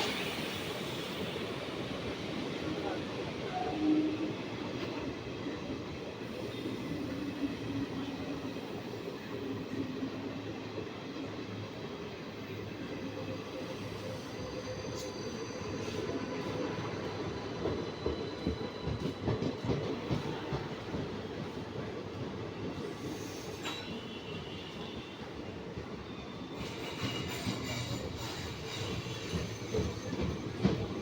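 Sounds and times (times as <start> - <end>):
train wheels rumbling on rails: 0.0 - 31.0
clacks over rail joints: 17.6 - 21.8, 26.6 - 31.0.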